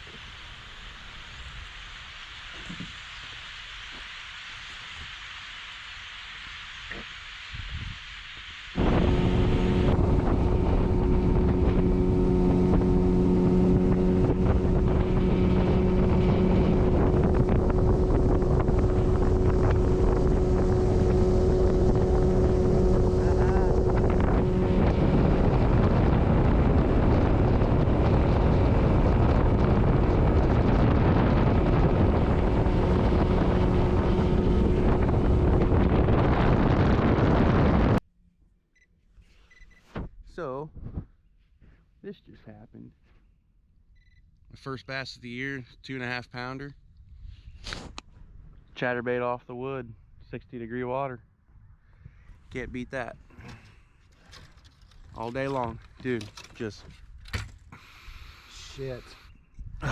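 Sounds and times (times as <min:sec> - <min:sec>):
wind rushing on microphone: 0:06.7 - 0:38.0, 0:51.6 - 0:59.9
outboard motor running: 0:08.8 - 0:38.0.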